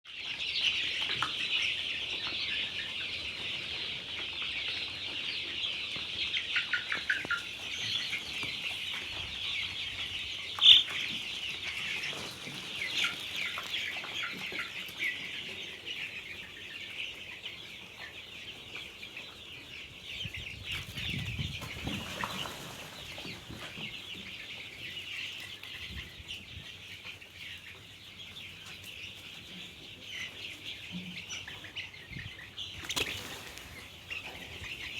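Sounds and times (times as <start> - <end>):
chickens cheeping and clucking: 0.1 - 34.9.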